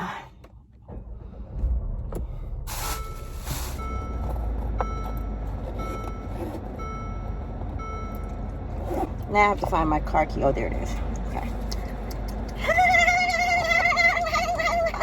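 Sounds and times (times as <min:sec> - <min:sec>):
low steady rumble: 0:00.0 - 0:15.0
car warning chime dinging: 0:02.8 - 0:11.0.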